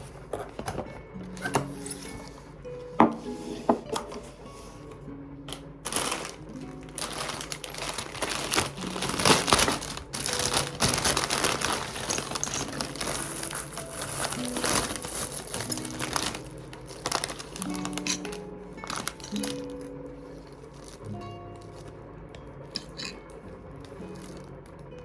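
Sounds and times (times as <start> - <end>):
soft background music: 0.0 - 25.0
material crinkling and rustling: 3.6 - 22.0, 23.8 - 24.8.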